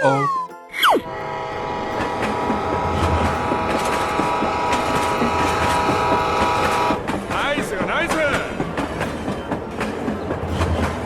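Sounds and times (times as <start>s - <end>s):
held steady chord-like tone: 0.0s - 7.2s
train rail clatter and rumble: 1.0s - 11.0s.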